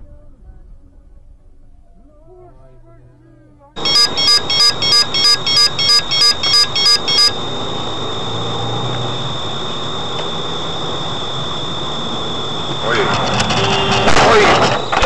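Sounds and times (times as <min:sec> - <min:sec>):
noisy hum with high whine: 0:03.8 - 0:15.0
rapid electronic beeps: 0:03.8 - 0:15.0.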